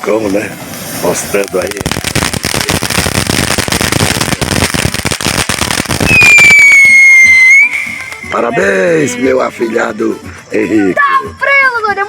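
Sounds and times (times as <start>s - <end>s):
fountain firework crackling: 0.0s - 8.8s
loud high whistle: 6.0s - 8.4s.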